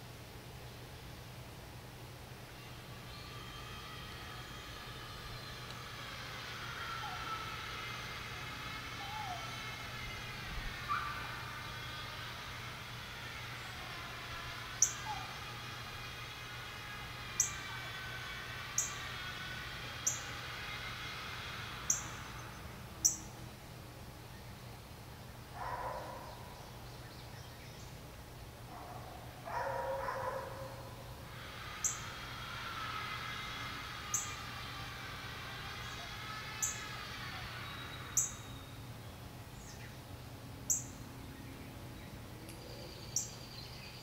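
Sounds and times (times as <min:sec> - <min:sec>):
chorus of lower bird calls: 0:02.4 - 0:28.2, 0:28.8 - 0:44.0.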